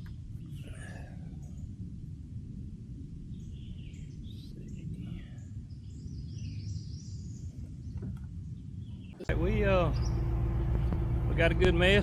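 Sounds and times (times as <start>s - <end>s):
low outdoor rumble: 0.0s - 12.0s
birds chirping: 3.3s - 12.0s.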